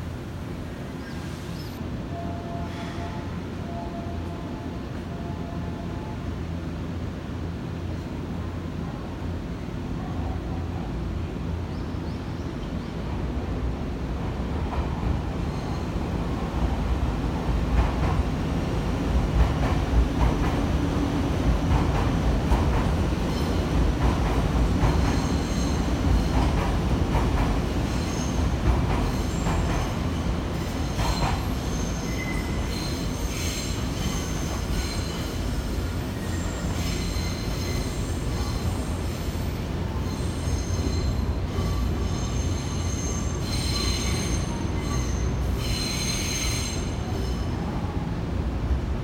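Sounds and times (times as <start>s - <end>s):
train rumbling: 0.0s - 49.0s
train wheels squealing: 1.0s - 3.8s, 15.4s - 16.0s, 24.8s - 26.7s, 27.8s - 47.6s.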